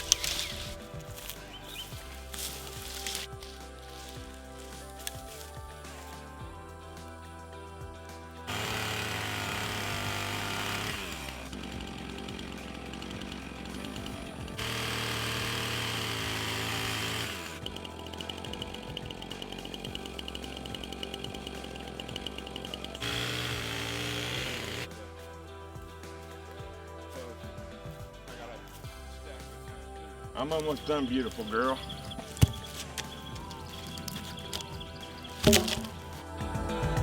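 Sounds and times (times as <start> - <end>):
chainsaw revving: 0.0 - 3.4, 8.5 - 24.9, 31.2 - 36.1
background music: 0.0 - 37.0.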